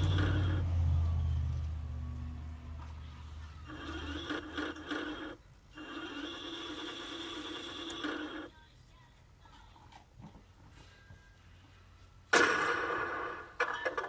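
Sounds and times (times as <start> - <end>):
toy tank motors whirring: 0.0 - 0.7, 3.6 - 8.5
low hum: 0.0 - 4.0.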